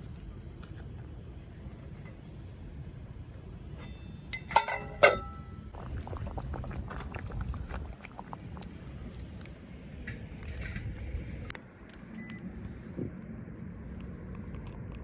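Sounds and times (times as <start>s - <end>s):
metal cookware clinking: 3.8s - 5.6s
food bubbling and crackling: 5.7s - 11.5s.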